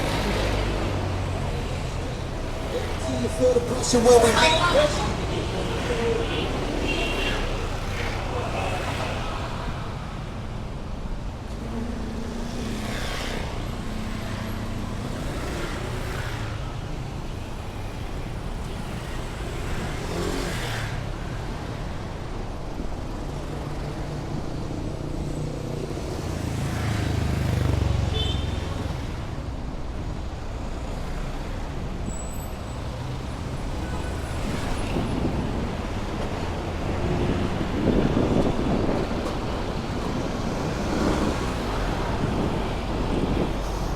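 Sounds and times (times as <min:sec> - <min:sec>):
cars and motorcycles passing: 0:00.0 - 0:43.9.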